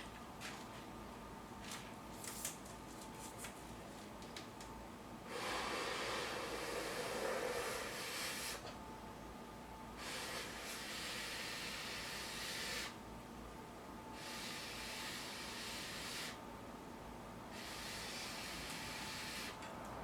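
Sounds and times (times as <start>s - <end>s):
gas torch burner hissing: 5.3s - 8.7s, 10.0s - 13.0s, 14.2s - 16.4s, 17.5s - 19.6s.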